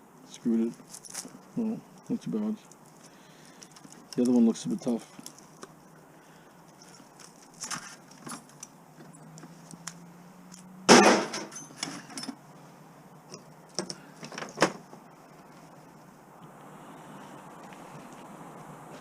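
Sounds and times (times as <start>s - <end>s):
loud sharp metal impact: 10.9s - 11.7s
scrap metal clinking and knocking: 10.9s - 12.4s.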